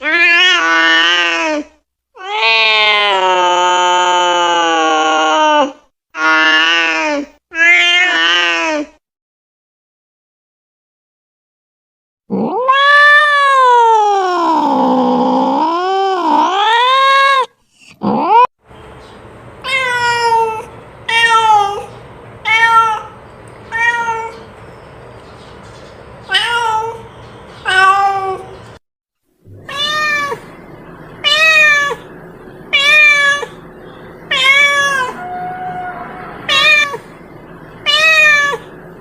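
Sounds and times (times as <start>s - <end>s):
cat meowing: 2.2s - 3.6s, 12.4s - 14.2s, 19.6s - 24.5s, 26.3s - 28.6s, 29.5s - 30.5s, 31.2s - 32.1s, 32.7s - 33.6s, 34.3s - 37.2s, 37.8s - 38.7s.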